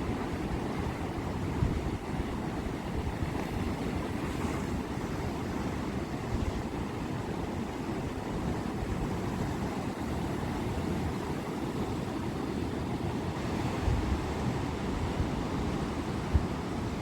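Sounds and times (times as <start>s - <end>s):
wind gust on microphone: 13.4s - 17.0s.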